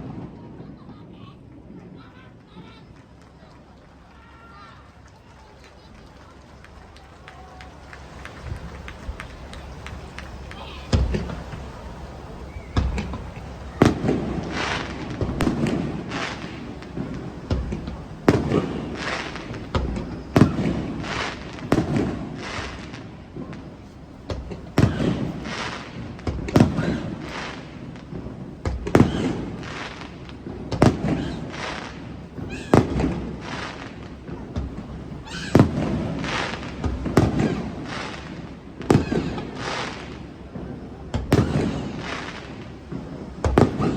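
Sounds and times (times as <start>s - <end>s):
fireworks shells bursting: 5.8s - 43.9s.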